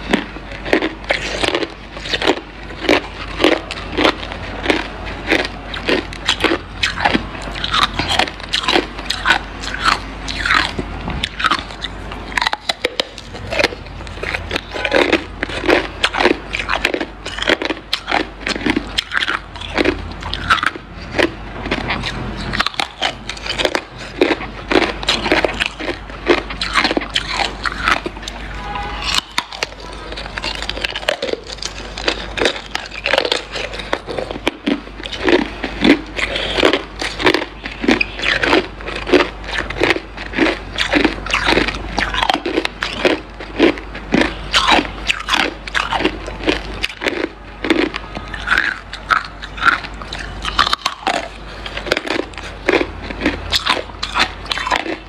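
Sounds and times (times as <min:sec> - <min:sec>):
ice being chewed: 0:00.0 - 0:55.0.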